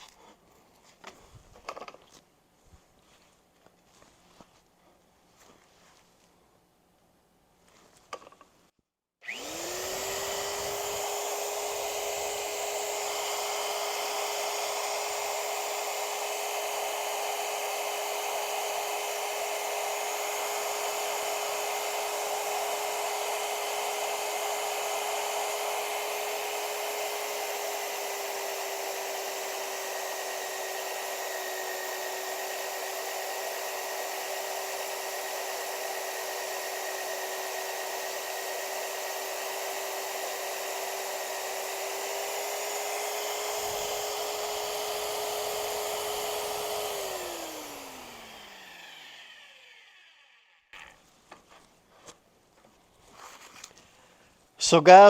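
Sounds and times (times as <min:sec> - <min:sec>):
drill press motor whining: 0:09.2 - 0:51.0.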